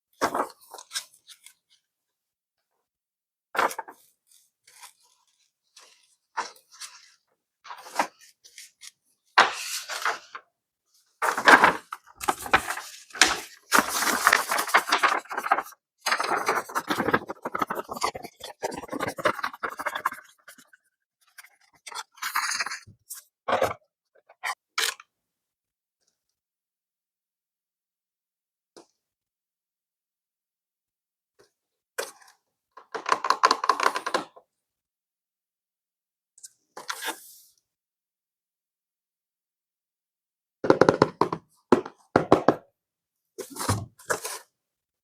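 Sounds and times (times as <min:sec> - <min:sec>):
packaging rustling and crinkling: 0:11.3 - 0:17.7.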